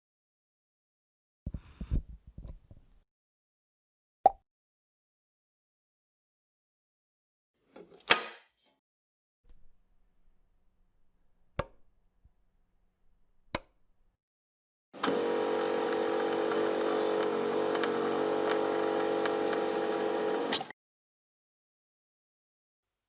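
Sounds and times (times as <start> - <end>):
electric motor humming and hissing: 15.0 - 20.7.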